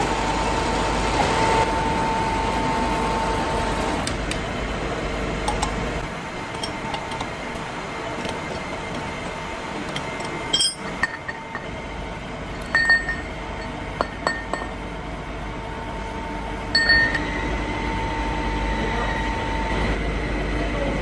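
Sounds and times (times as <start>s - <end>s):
steady machine hum: 0.0s - 21.0s
metal pieces clinking: 9.9s - 11.4s.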